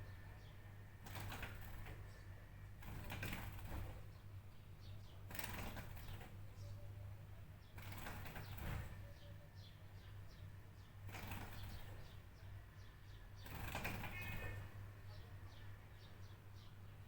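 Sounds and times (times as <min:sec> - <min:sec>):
faint bird chirps: 0:04.1 - 0:17.0.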